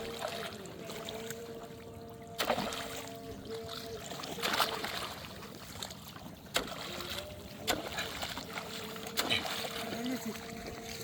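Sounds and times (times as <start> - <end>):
sharp knocks or splashes: 2.3 - 3.2, 4.0 - 10.1.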